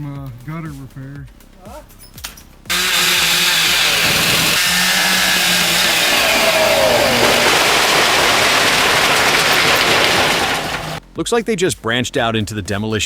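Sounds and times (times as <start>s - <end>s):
engine running loudly: 2.7s - 11.0s
falling whine: 2.7s - 11.0s.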